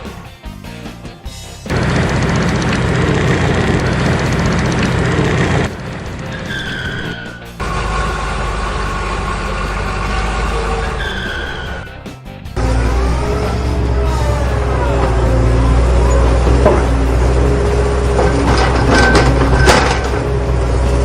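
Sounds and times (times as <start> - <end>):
background music: 0.0 - 21.0
vehicle engine rumble: 1.6 - 21.0.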